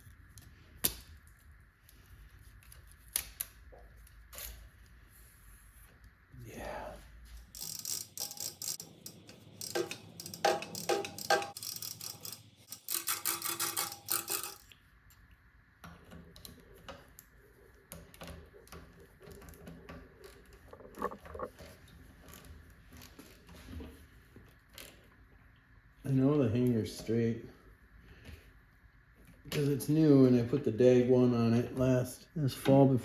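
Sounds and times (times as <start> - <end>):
metallic clicking of bike parts: 2.5 - 4.8, 7.5 - 14.8.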